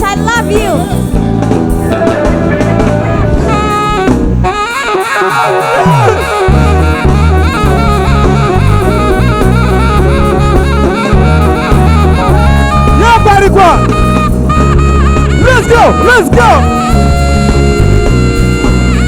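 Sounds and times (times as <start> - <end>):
band music with horns: 0.0 - 19.0
falling sweep: 1.7 - 9.2.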